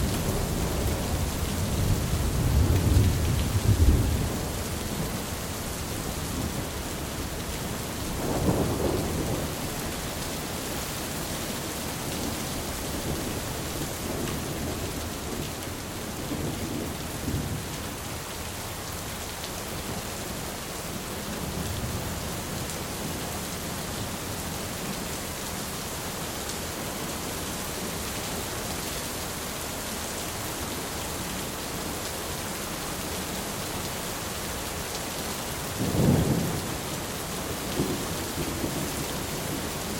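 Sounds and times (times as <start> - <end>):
heavy rain: 0.0 - 39.9
thunder rumbling: 0.1 - 5.3, 8.0 - 10.1.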